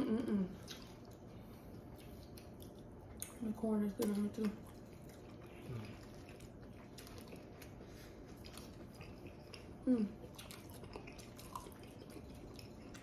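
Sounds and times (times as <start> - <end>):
person humming: 0.0 - 0.6
people chewing and eating: 0.0 - 13.0.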